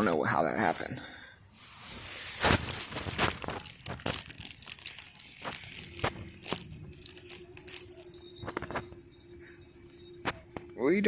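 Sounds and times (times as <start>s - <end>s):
sharp crunching and crackling clicks: 2.5s - 8.8s.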